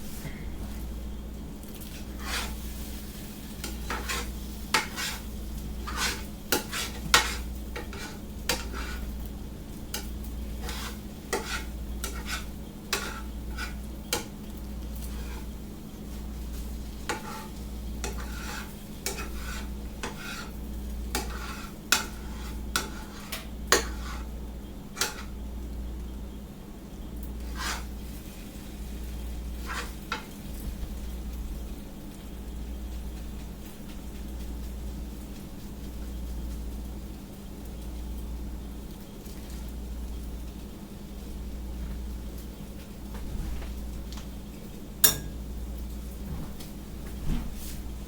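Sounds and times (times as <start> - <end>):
low pulsing hum: 0.0 - 1.6.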